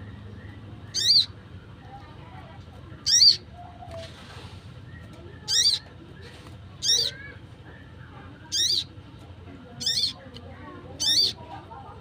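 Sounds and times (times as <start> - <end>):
high warbling bird calls: 0.0 - 1.7, 3.0 - 4.2, 4.8 - 9.0, 9.7 - 10.3, 10.9 - 11.5.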